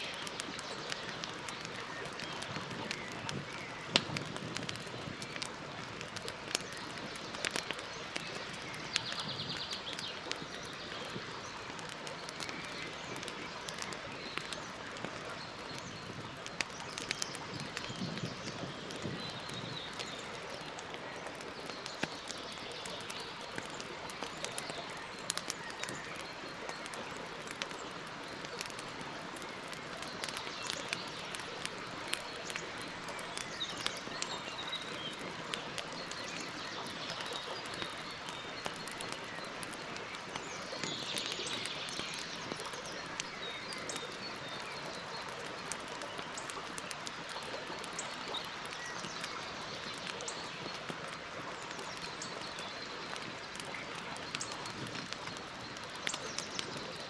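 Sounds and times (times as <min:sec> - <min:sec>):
campfire crackling and popping: 0:00.0 - 0:57.0
birds chirping: 0:06.1 - 0:50.9.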